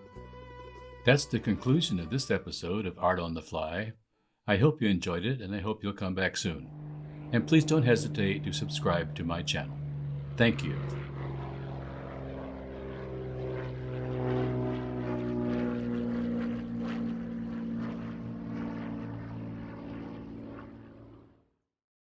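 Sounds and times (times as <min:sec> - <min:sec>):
propeller airplane engine droning: 0:04.8 - 0:21.5.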